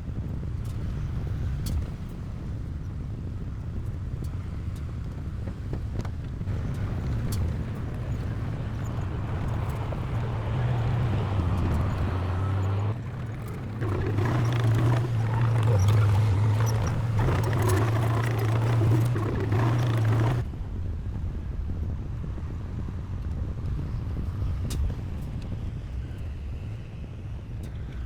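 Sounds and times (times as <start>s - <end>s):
heavy diesel engine running: 6.5s - 20.4s
machine clattering and scraping: 7.4s - 20.4s.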